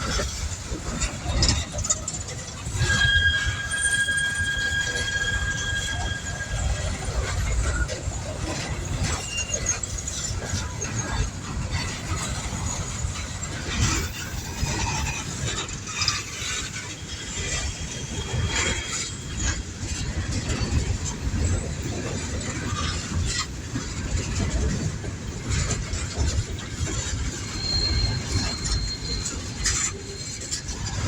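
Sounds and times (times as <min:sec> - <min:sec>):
train cars rumbling and clacking: 0:00.0 - 0:31.0
high-pitched wheel squeal: 0:01.3 - 0:11.2, 0:12.2 - 0:19.6, 0:26.2 - 0:31.0.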